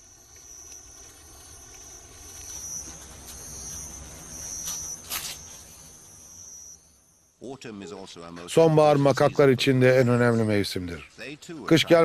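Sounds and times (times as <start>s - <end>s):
insects trilling: 0.0s - 8.1s
brief crackles: 4.6s - 5.6s.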